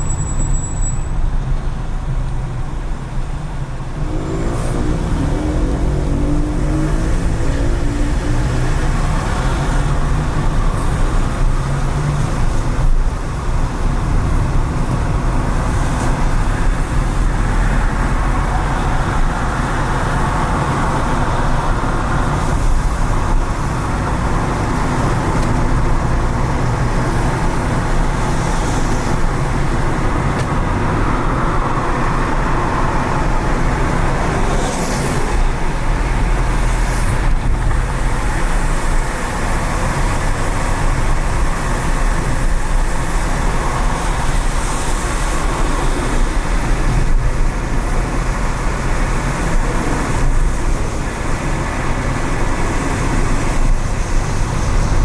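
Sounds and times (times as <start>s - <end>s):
car engine and road rumble: 0.0s - 55.0s
passing traffic hisses: 15.5s - 55.0s.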